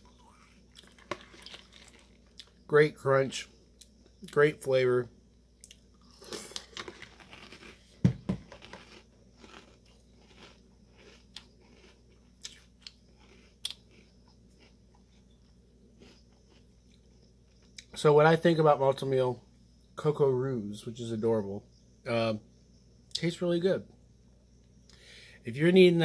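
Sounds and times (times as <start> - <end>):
person chewing crunchy cereal: 0.0 - 2.7, 5.6 - 17.9.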